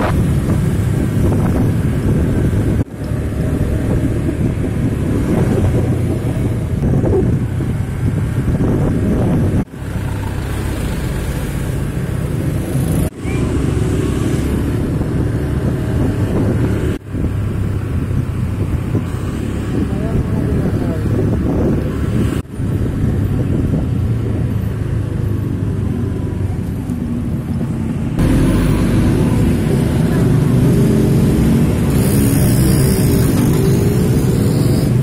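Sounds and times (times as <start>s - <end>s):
wind buffeting microphone: 0.0s - 10.4s, 12.1s - 35.0s
road noise: 0.0s - 35.0s
vehicle engine: 0.0s - 35.0s.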